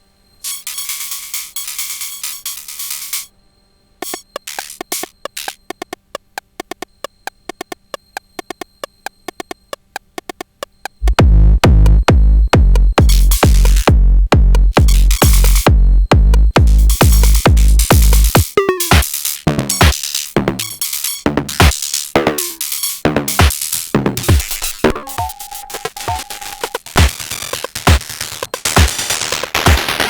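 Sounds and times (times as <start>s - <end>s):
clicky percussion run: 0.4s - 3.3s, 4.0s - 30.0s
drum machine techno pattern: 0.4s - 3.3s, 4.0s - 30.0s
deep kick drum beat: 9.3s - 19.0s, 26.1s - 30.0s.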